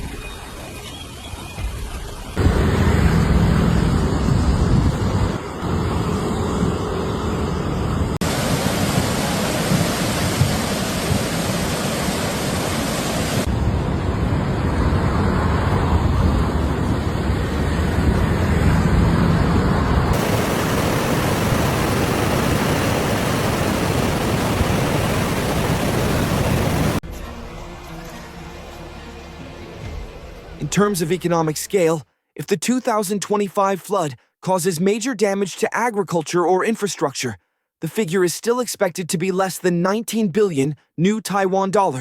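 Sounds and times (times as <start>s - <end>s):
torrential rain: 8.2s - 13.7s, 20.1s - 27.0s
floodwater rushing: 8.2s - 19.4s, 20.1s - 27.0s.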